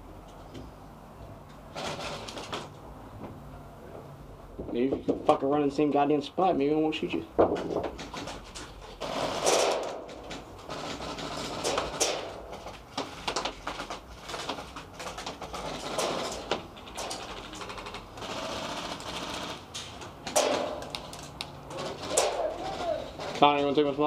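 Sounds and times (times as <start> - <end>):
pellets striking: 20.3 - 21.2.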